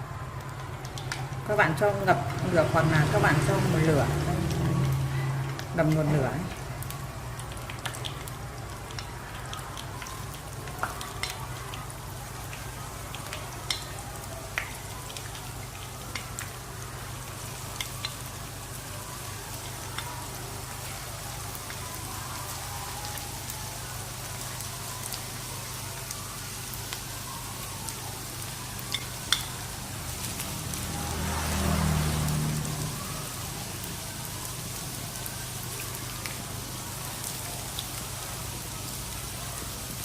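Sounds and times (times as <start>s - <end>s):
oil sizzling and popping: 0.3s - 40.0s.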